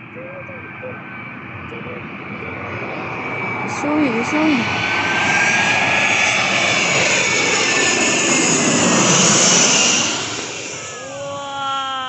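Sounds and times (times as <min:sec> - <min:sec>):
jet airliner passing low: 0:00.0 - 0:12.0.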